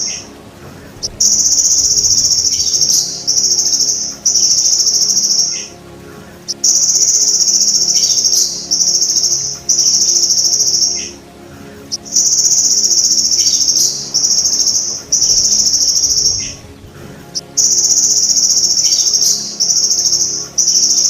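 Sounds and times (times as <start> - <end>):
grasshopper buzzing trill: 0.0 - 21.0.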